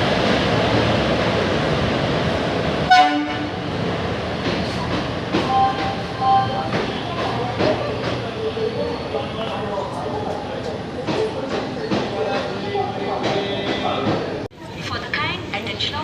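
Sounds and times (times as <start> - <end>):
train rumbling: 0.0 - 16.0
train horn blast: 2.9 - 3.6.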